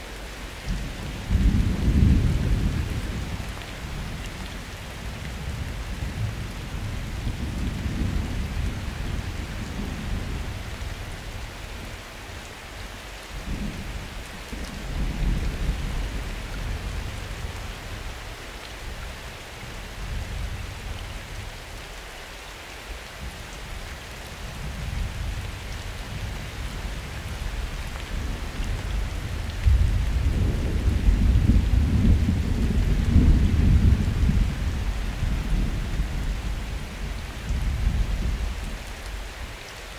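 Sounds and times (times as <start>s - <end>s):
rain falling: 0.0s - 39.9s
thunder rumbling: 28.1s - 38.6s.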